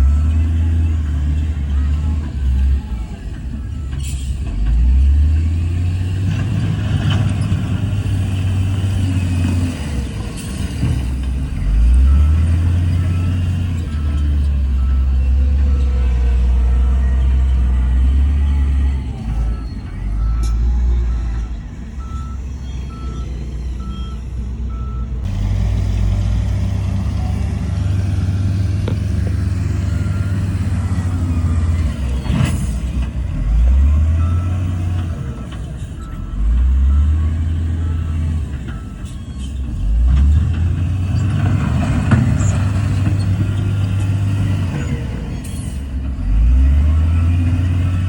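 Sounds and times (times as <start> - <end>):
heavy diesel engine rumble: 0.0 - 48.0
reversing alarm beeping: 11.6 - 25.3, 27.1 - 40.0.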